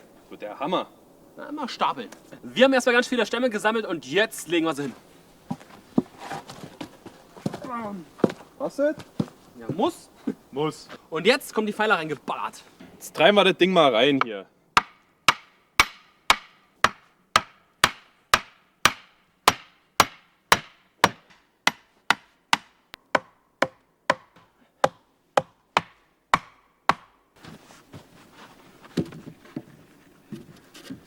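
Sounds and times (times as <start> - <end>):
quiet rustling: 0.0 - 13.9, 27.4 - 31.0
hammer driving wooden post: 14.2 - 27.2.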